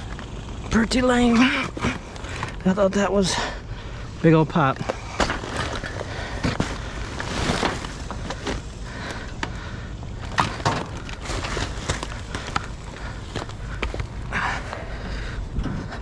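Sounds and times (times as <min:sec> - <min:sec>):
steady low rumble: 0:00.0 - 0:16.0
junk knocking and scraping: 0:10.2 - 0:16.0.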